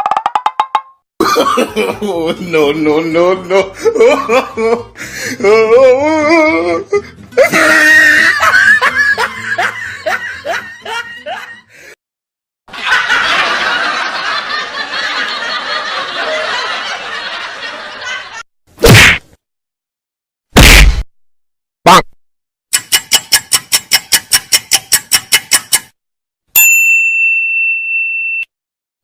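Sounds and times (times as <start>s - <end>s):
wavering laugh: 1.2s - 2.6s, 3.3s - 5.7s, 6.9s - 11.8s, 12.7s - 18.4s.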